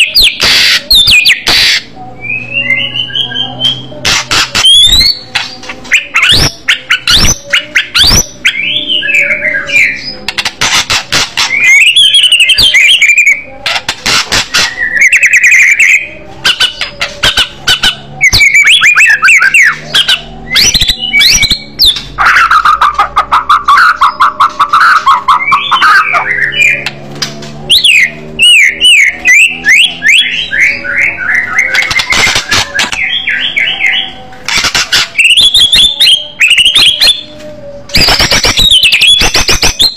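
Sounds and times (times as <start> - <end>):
songbird singing loudly: 0.0 - 10.3, 11.0 - 13.8, 14.6 - 39.9.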